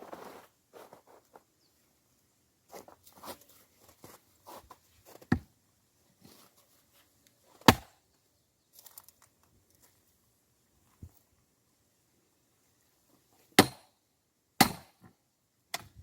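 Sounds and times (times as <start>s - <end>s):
scuffing and crunching of wood: 0.0s - 1.5s, 2.7s - 5.5s
axe striking log: 7.6s - 8.0s, 13.6s - 14.0s, 14.6s - 15.1s.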